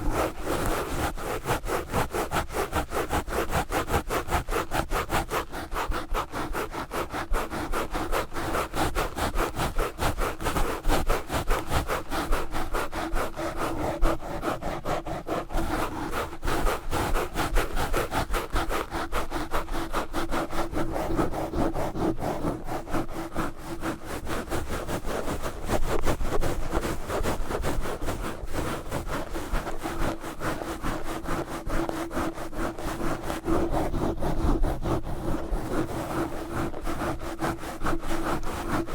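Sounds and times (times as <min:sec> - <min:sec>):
gloves scratching a microphone: 0:00.0 - 0:38.9.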